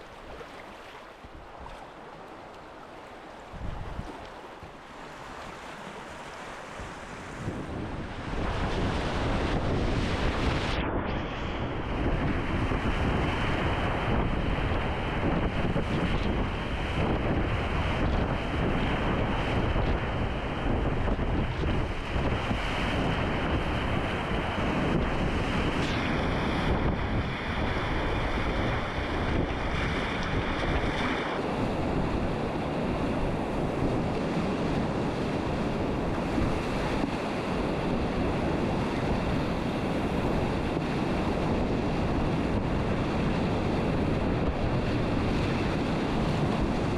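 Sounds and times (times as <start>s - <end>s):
river water rushing: 0.0s - 7.5s
wind buffeting microphone: 0.0s - 46.9s.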